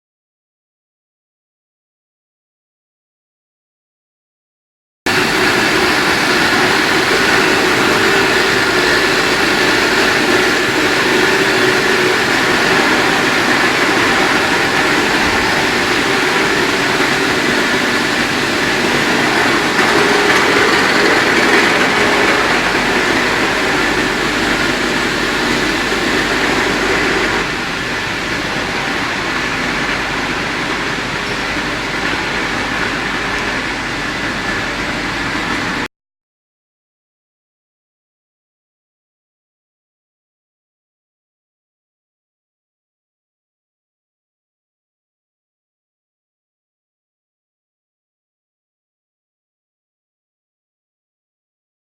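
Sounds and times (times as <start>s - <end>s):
drying machine running: 5.1s - 35.9s.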